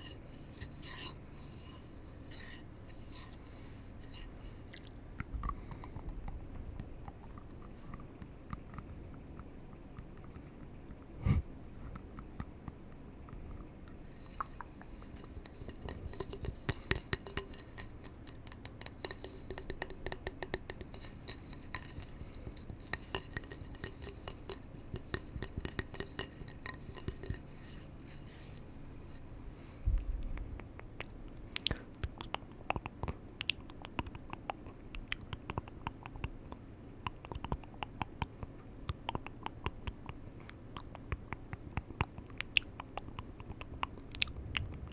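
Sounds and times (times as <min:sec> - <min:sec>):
tapping on hard objects: 0:14.4 - 0:27.4.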